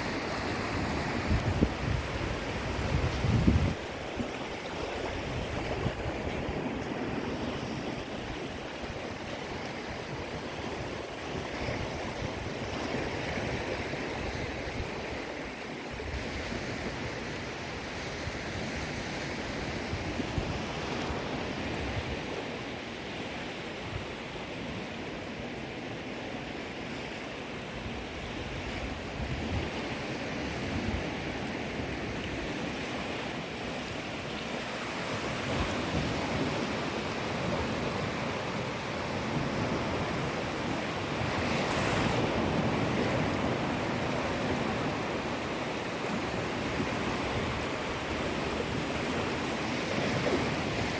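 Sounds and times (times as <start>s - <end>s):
sea waves washing ashore: 0.0s - 50.9s.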